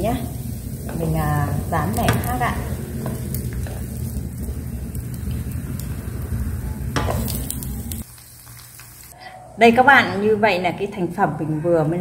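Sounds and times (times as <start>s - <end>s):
pancakes sizzling in oil: 0.0s - 9.2s.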